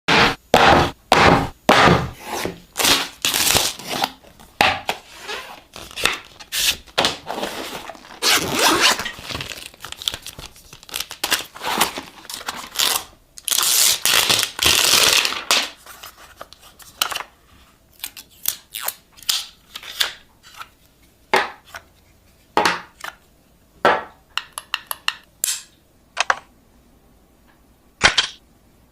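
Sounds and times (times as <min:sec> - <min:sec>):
packaging tearing and crinkling: 0:02.8 - 0:04.2, 0:05.0 - 0:16.1.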